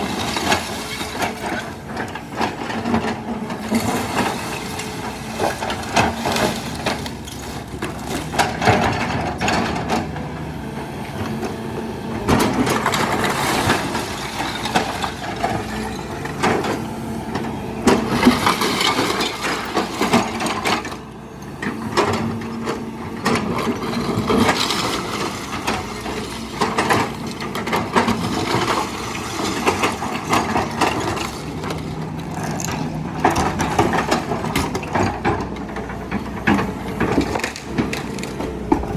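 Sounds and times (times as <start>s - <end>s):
excavator diesel engine running: 0.0s - 38.9s
debris crunching and breaking: 2.8s - 9.8s, 12.4s - 16.6s, 18.0s - 20.9s, 23.4s - 35.5s, 36.6s - 38.9s.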